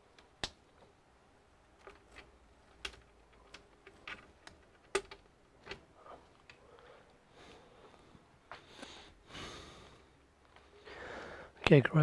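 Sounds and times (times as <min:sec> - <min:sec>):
computer keyboard clicks: 0:01.9 - 0:05.8.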